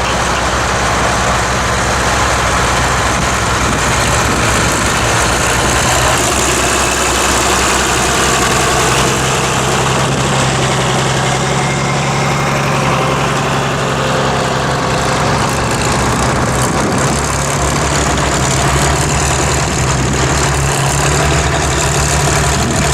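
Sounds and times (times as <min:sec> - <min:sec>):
tractor engine running: 0:00.0 - 0:22.9
wind noise on microphone: 0:02.4 - 0:10.5, 0:15.9 - 0:20.5, 0:22.3 - 0:22.9.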